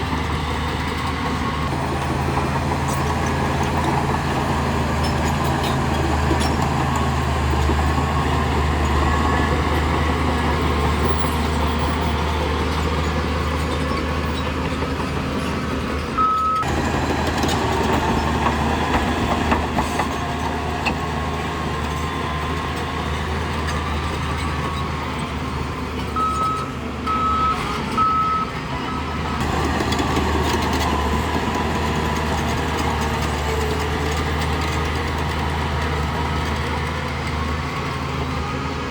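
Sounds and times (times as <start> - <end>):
heavy diesel machine engine: 0.0 - 38.9
reversing alarm beeping: 16.2 - 16.7, 26.2 - 29.4.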